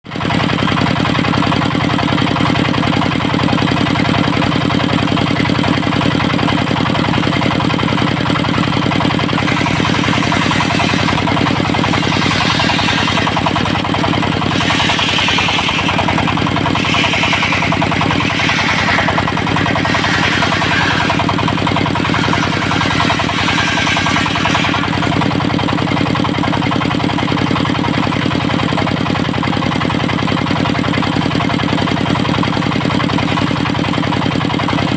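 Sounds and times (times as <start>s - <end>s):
diesel engine running: 0.1s - 34.9s
saw blade rasping into log: 8.9s - 25.5s.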